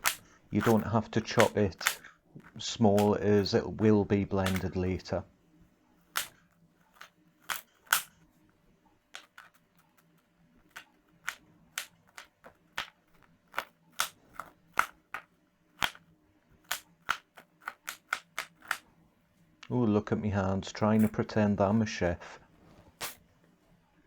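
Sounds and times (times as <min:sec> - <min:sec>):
knife chopping on a board: 0:00.0 - 0:02.1.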